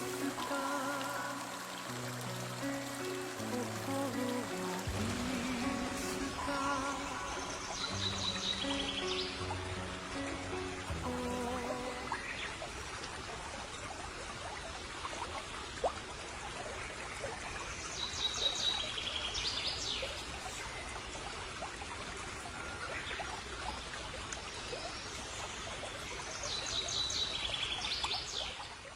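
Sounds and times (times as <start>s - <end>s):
stream water flowing: 0.0s - 28.9s
songbird singing trills: 4.0s - 9.8s.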